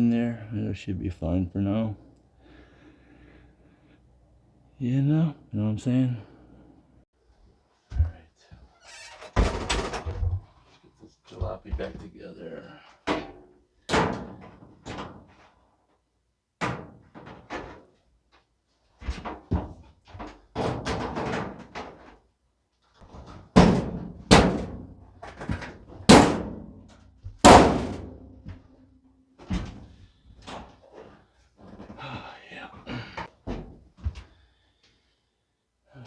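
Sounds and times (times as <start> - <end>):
metal panels clunking and banging: 13.1 - 15.4, 16.6 - 17.9, 19.0 - 22.2, 23.1 - 28.8.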